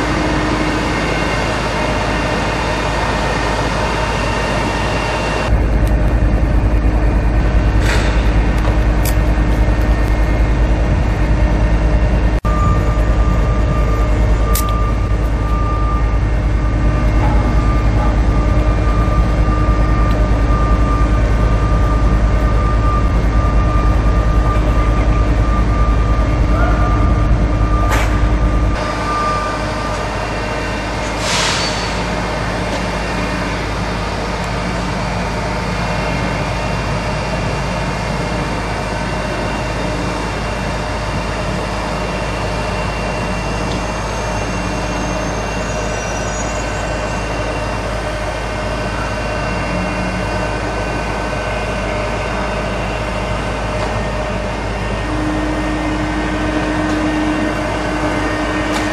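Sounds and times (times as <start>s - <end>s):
diesel machinery drone: 0.0s - 58.9s
traffic: 0.0s - 58.9s
heavy low rumble: 5.0s - 31.4s.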